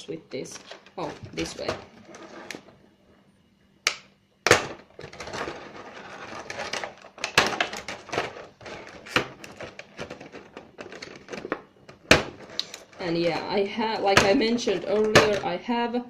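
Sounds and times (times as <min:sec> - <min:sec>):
plastic parts clicking: 0:03.9 - 0:15.5
crackly plastic rustling: 0:04.7 - 0:15.5.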